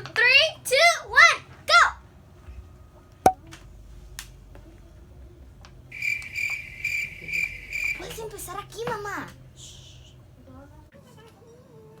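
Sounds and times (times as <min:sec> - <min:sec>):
pulsing high chirping: 0:05.9 - 0:08.5.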